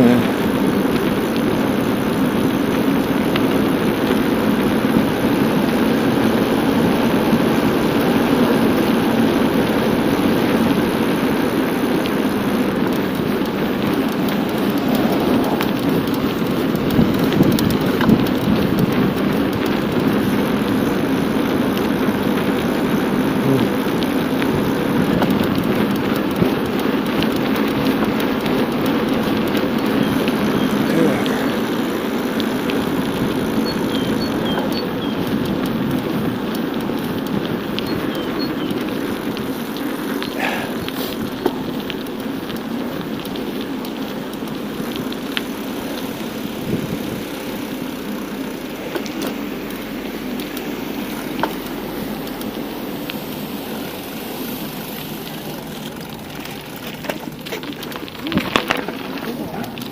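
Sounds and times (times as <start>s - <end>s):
bicycle tyres rolling: 0.0s - 59.9s
wind rushing on microphone: 14.0s - 20.2s, 46.6s - 47.3s.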